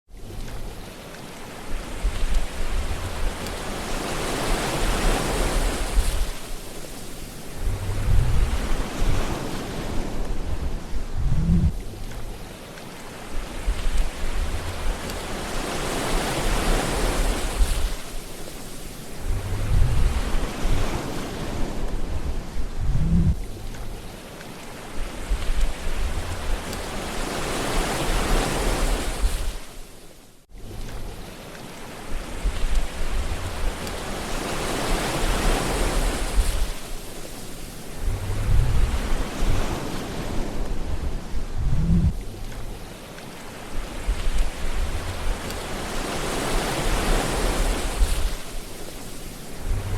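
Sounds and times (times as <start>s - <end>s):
sea waves washing on shore: 0.1s - 49.9s
wind buffeting microphone: 1.6s - 12.6s, 13.2s - 24.2s, 24.8s - 29.7s, 32.0s - 42.9s, 43.5s - 49.9s
low rumble: 1.9s - 3.6s, 7.5s - 9.4s, 10.1s - 12.5s, 13.4s - 15.3s, 19.2s - 21.0s, 21.6s - 24.0s, 25.2s - 27.0s, 32.4s - 34.0s, 38.0s - 39.7s, 40.3s - 42.9s, 43.8s - 45.8s, 49.5s - 49.9s.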